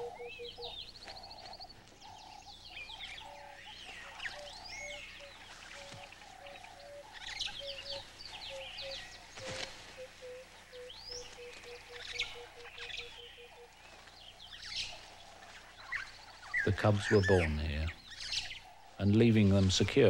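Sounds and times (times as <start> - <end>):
bird cooing notes: 0.0 - 2.3, 3.0 - 14.1
birds singing and chirping: 0.0 - 20.0.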